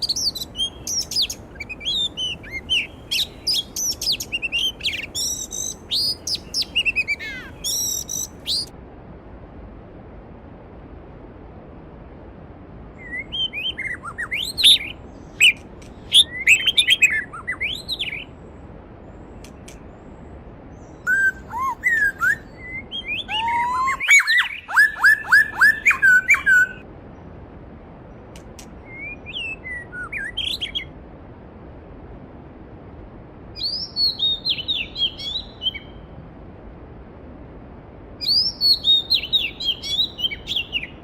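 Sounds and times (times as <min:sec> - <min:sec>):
songbirds singing: 0:00.0 - 0:08.7, 0:13.0 - 0:27.3, 0:28.6 - 0:31.0, 0:33.6 - 0:36.2, 0:38.2 - 0:41.0.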